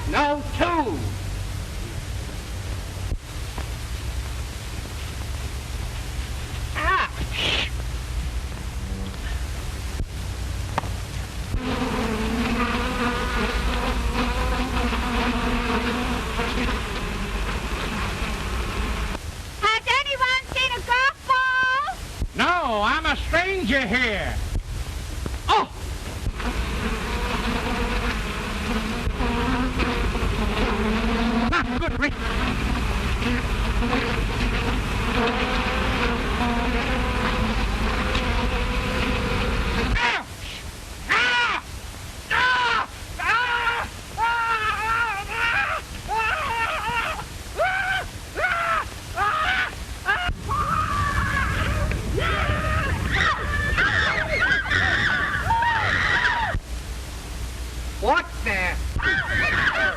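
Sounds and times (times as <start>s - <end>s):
old film soundtrack hiss and hum: 0.0s - 59.9s
bees buzzing: 10.8s - 19.2s, 26.2s - 40.1s.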